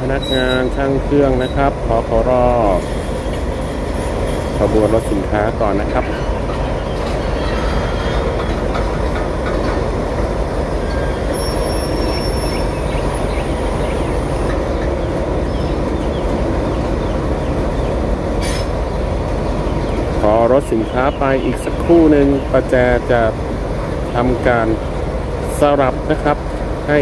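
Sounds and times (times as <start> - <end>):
freight train rumble and clatter: 0.0 - 27.0
thin high squeal: 10.8 - 12.8.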